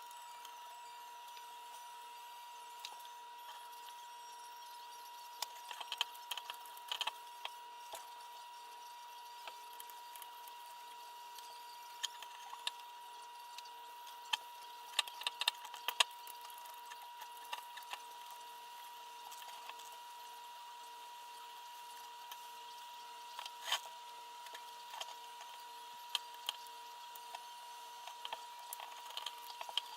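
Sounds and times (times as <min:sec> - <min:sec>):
steady high-pitched whine: 0:00.0 - 0:29.9
small parts clicking and tapping: 0:04.6 - 0:20.2, 0:21.7 - 0:29.9.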